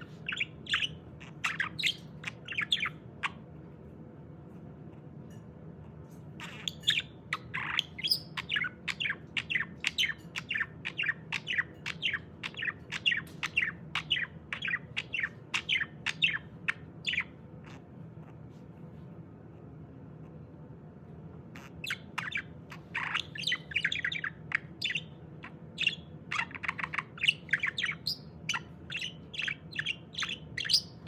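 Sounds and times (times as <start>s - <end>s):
budgerigar chirping: 0.0s - 3.4s, 6.4s - 17.8s, 21.6s - 31.0s.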